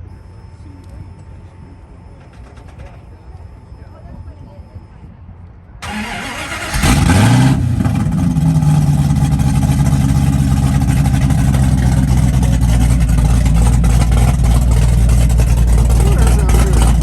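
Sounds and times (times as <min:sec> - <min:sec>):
starter motor cranking: 0:05.8 - 0:07.2
car engine idling loudly: 0:05.8 - 0:17.0
man talking: 0:15.7 - 0:17.0.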